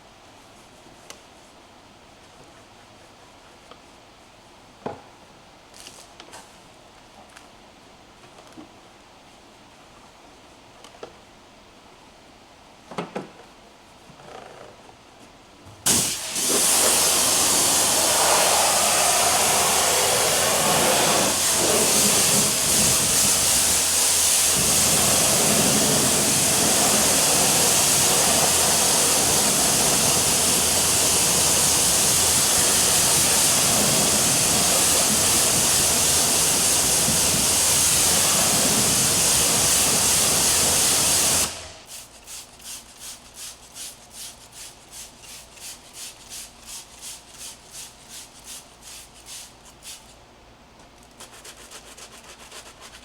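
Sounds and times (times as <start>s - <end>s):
car wash spray hissing: 15.9s - 43.2s.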